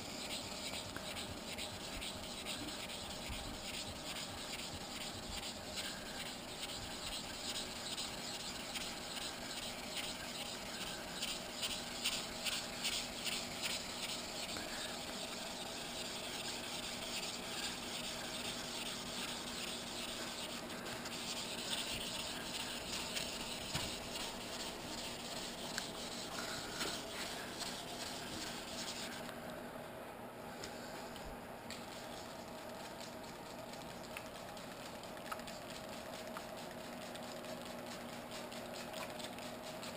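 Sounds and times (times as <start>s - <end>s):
sandpaper rubbing on metal tank: 0.0s - 29.2s.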